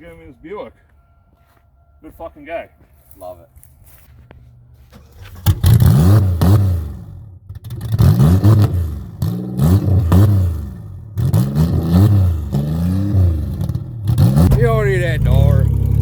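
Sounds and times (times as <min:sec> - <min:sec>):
car engine revving: 0:04.9 - 0:16.0.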